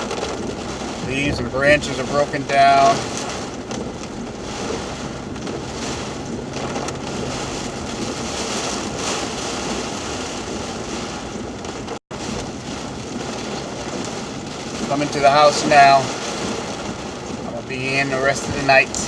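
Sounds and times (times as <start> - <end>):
heavy rain on car: 0.0 - 19.0
low car engine: 0.0 - 19.0
wet road tyre noise: 0.0 - 19.0
wind: 0.0 - 19.0.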